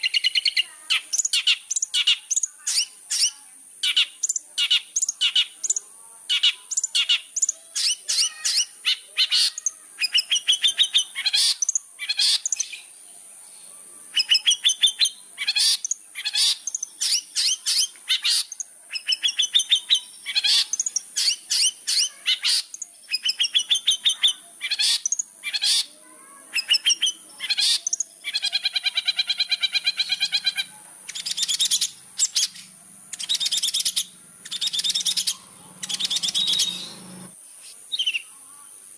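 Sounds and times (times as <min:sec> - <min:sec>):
bird singing sharp chirps: 0:00.0 - 0:25.9, 0:26.5 - 0:38.4
harsh drawn-out bird note: 0:29.9 - 0:37.4.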